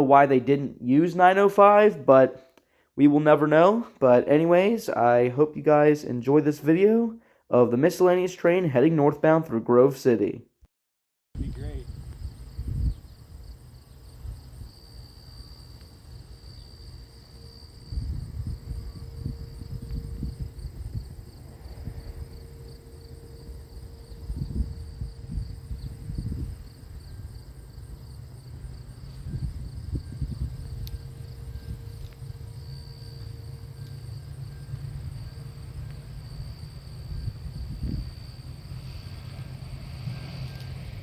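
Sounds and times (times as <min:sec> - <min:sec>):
insects chirring: 0:11.4 - 0:41.0
low rumble: 0:17.4 - 0:27.8, 0:28.6 - 0:41.0.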